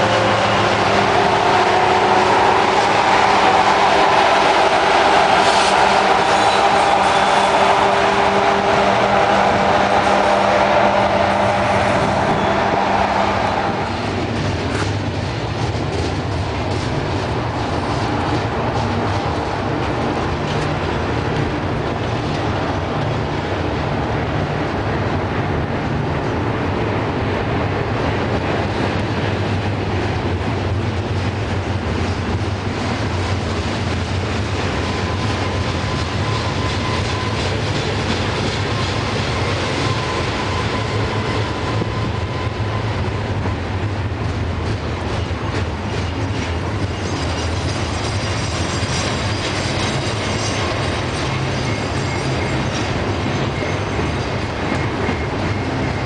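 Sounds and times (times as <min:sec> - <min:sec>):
high wheel squeal: 0:00.0 - 0:14.4, 0:34.8 - 0:43.2, 0:45.2 - 0:56.0
steel wheels rumbling on rail: 0:00.0 - 0:56.0.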